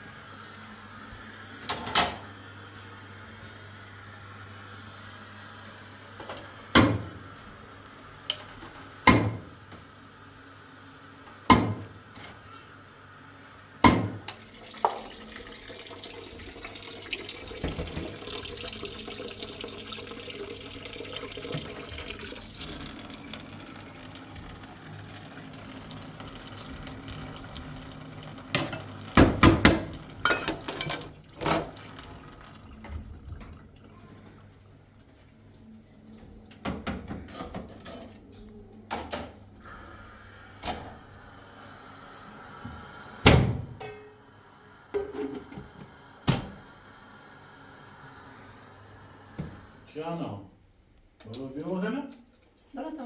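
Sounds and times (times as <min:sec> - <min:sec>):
water running into a sink: 0:13.8 - 0:37.0, 0:39.6 - 0:49.9.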